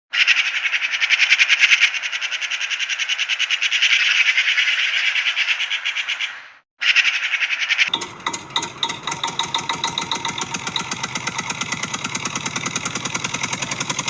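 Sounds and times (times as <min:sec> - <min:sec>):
rapid chirping trill: 0:00.2 - 0:08.0.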